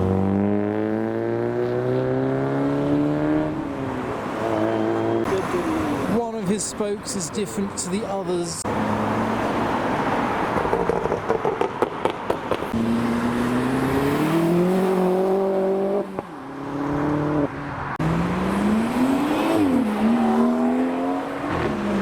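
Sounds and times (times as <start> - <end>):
car engine accelerating hard: 12.7 - 22.0.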